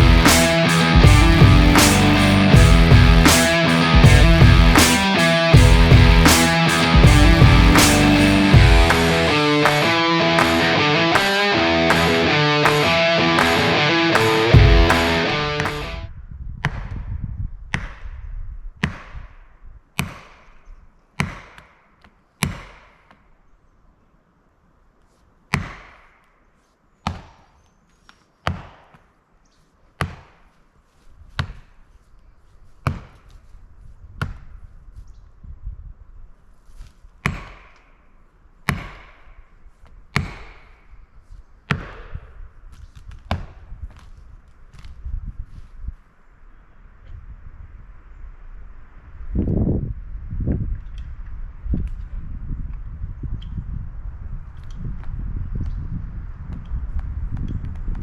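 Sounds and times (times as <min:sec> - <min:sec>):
axe chopping wood: 0:20.0 - 0:20.5, 0:21.2 - 0:21.7, 0:22.4 - 0:23.0, 0:25.5 - 0:26.1, 0:30.0 - 0:30.5, 0:37.2 - 0:37.8, 0:38.7 - 0:39.2, 0:40.2 - 0:40.7, 0:41.7 - 0:42.2.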